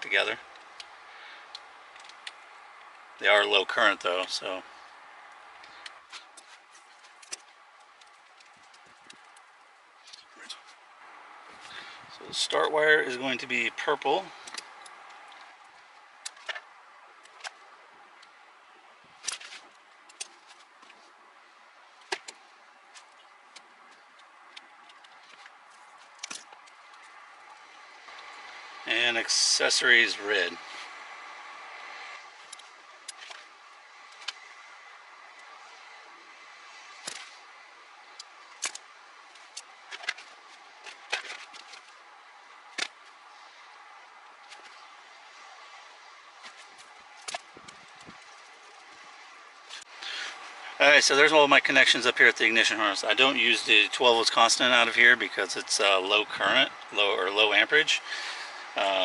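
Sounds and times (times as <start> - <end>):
faint steady hiss: 0.0 - 59.0
sharp clicks and snips of wires: 19.1 - 21.0, 36.7 - 49.9.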